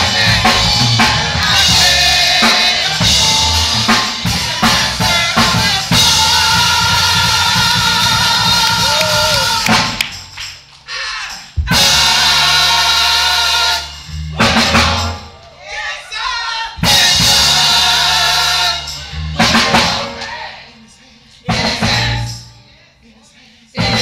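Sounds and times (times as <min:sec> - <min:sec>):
drum kit hits: 0:00.0 - 0:10.5, 0:11.6 - 0:12.6, 0:14.1 - 0:15.3, 0:16.8 - 0:18.2, 0:19.4 - 0:20.4
church band music: 0:00.0 - 0:23.0, 0:23.8 - 0:24.0.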